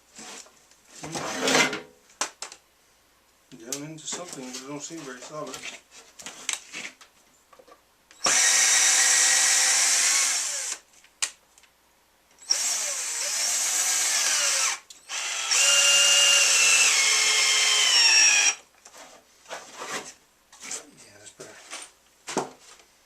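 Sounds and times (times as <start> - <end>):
electric drill driving screw: 8.2 - 10.8, 12.4 - 18.6.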